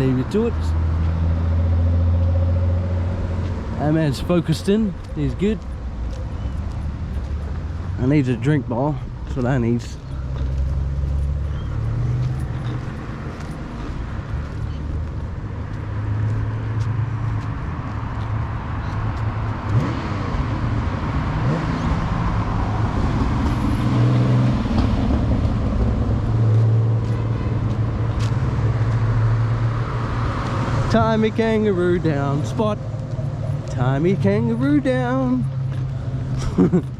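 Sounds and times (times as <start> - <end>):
car engines running low revs: 10.2 - 36.9.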